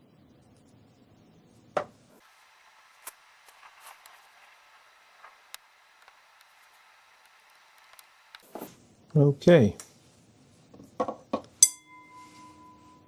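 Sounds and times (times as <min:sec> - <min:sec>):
spot welder snap: 0:03.0 - 0:04.3.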